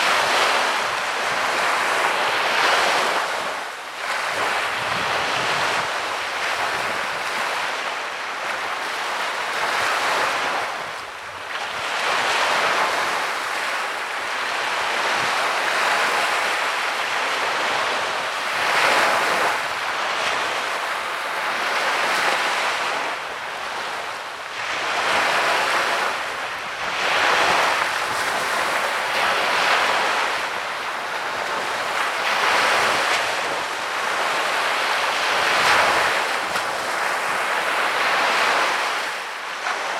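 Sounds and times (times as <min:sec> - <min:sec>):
waves breaking on beach: 0:00.0 - 0:39.9
wind on microphone: 0:00.0 - 0:39.9.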